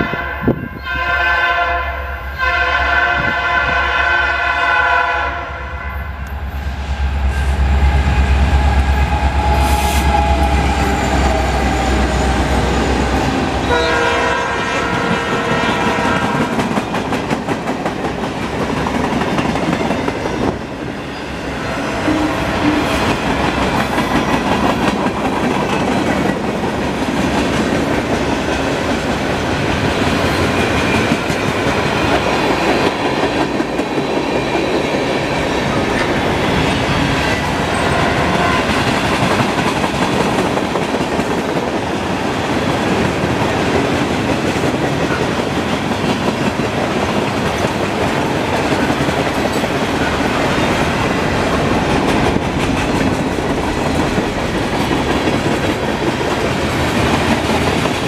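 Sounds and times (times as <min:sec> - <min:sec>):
steel wheels clattering on rail: 0:16.2 - 0:20.8, 0:21.8 - 0:58.0.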